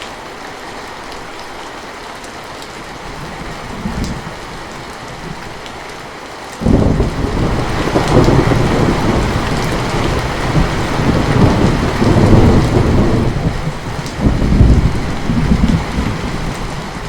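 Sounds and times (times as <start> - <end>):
heavy rain: 0.0 - 17.0
thunder rumbling: 6.6 - 17.0.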